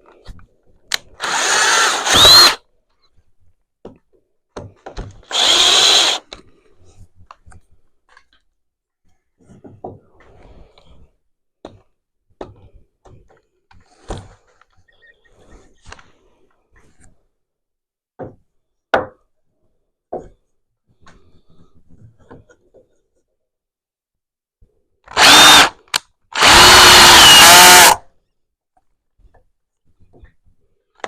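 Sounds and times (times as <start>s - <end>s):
power drill running: 1.2s - 2.6s, 5.2s - 6.2s, 25.1s - 28.0s.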